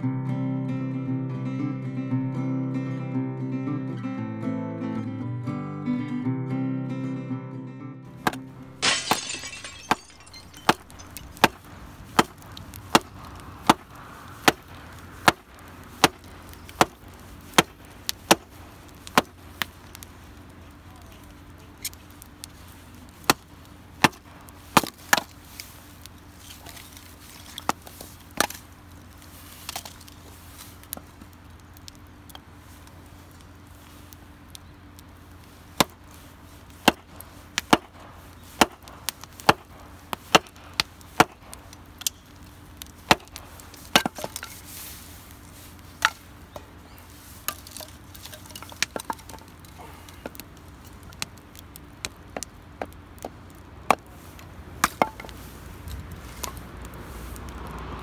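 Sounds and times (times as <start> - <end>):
hatchet chopping kindling: 8.2 - 19.4, 23.2 - 25.3, 35.8 - 36.0, 36.8 - 42.3, 43.0 - 44.7, 46.0 - 46.8, 52.0 - 56.6.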